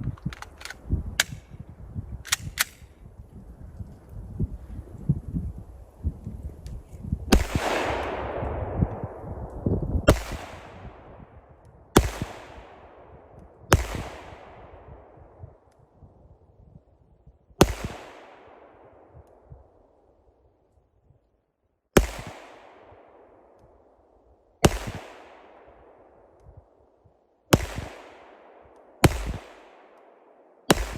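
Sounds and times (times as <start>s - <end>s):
pistol shots with echo: 7.3s - 15.4s, 17.6s - 19.5s, 22.0s - 23.9s, 24.6s - 26.3s, 27.5s - 30.9s.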